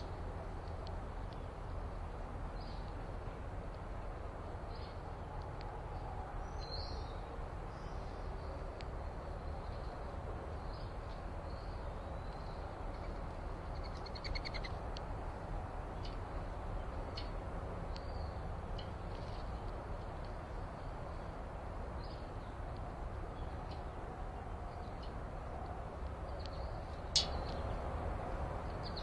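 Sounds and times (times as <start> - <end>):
small birds chirping: 2.5 - 3.0, 4.5 - 15.1, 15.9 - 29.0.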